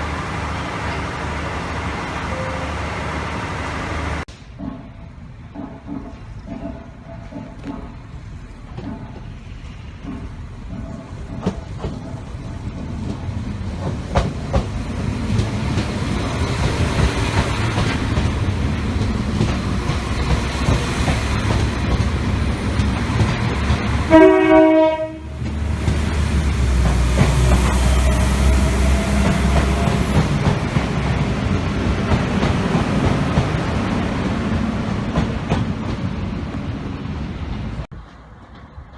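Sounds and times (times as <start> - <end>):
train rumbling on rails: 0.0 - 38.9
train horn blast: 2.2 - 2.9, 24.1 - 25.4.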